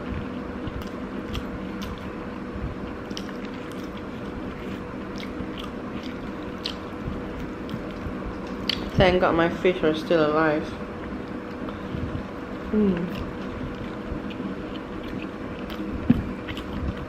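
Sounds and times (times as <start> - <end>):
steady background hum: 0.0 - 17.0
chewing rice: 0.6 - 2.2, 2.8 - 8.9, 13.1 - 17.0.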